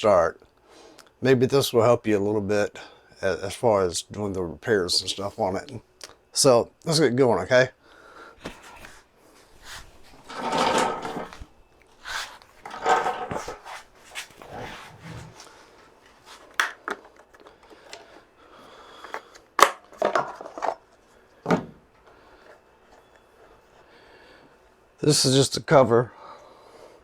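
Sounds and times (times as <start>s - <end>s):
rustling and scraping of parts: 4.9s - 5.8s, 8.4s - 24.9s.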